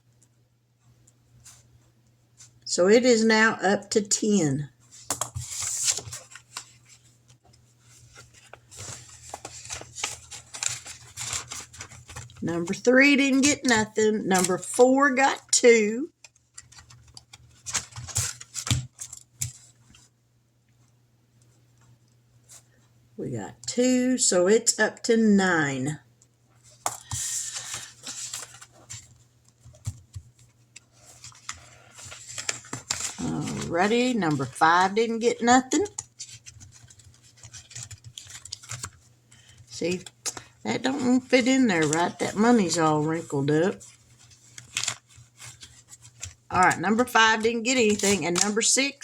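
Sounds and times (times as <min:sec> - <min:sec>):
paper money rustling: 0:05.0 - 0:07.2, 0:07.8 - 0:14.9, 0:16.2 - 0:19.8, 0:26.7 - 0:49.0.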